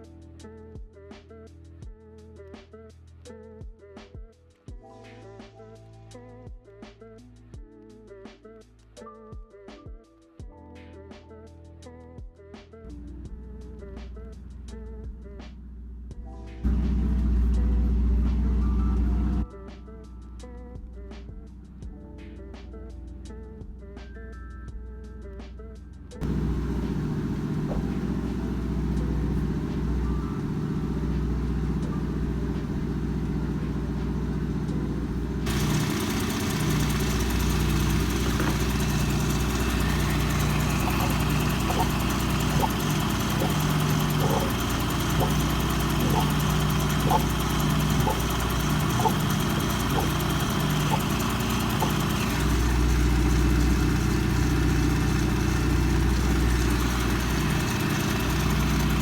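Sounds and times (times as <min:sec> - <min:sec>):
car engine idling: 0:15.6 - 0:19.4, 0:26.2 - 0:59.0.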